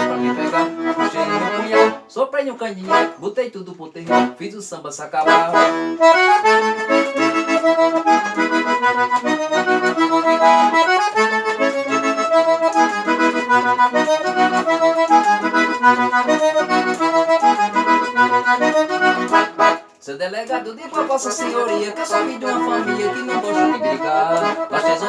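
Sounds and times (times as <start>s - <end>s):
accordion melody: 0.0s - 25.0s
bouncing bass notes: 5.3s - 19.8s.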